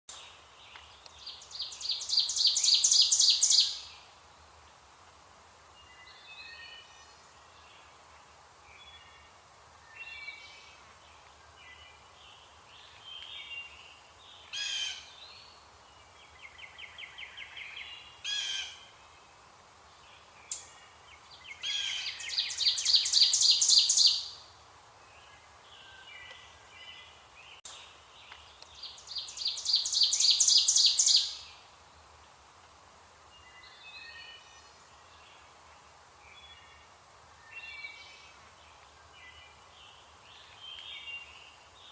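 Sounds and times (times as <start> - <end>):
bird song of rapid repeated notes: 0.1 - 4.1, 5.7 - 32.4, 33.2 - 41.9
songbirds chirping and whistling: 0.7 - 3.9, 20.5 - 24.4, 28.3 - 31.4.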